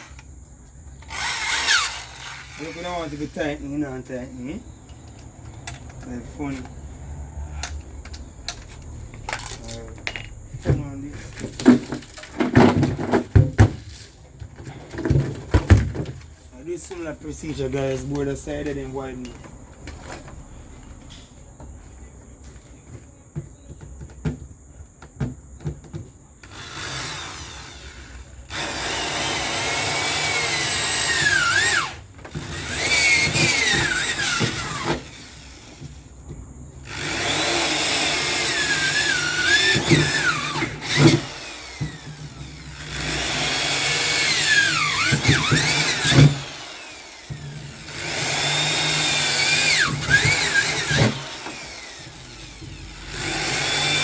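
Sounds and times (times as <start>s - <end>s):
electric drill boring into metal: 0.0s - 0.3s, 1.0s - 3.6s, 26.4s - 36.0s, 36.8s - 54.0s.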